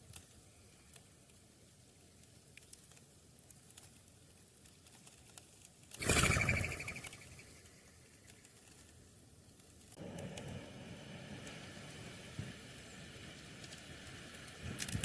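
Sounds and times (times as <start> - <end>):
bird wingbeats fluttering: 5.0 - 9.0.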